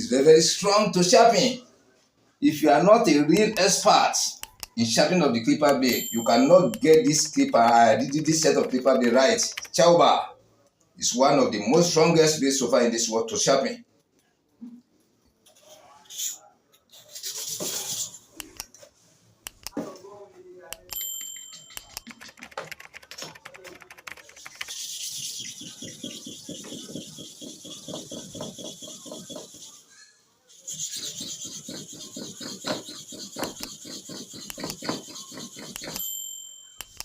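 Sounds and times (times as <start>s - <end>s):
blade rubbed on sharpening stone: 24.4s - 29.9s, 30.5s - 36.0s.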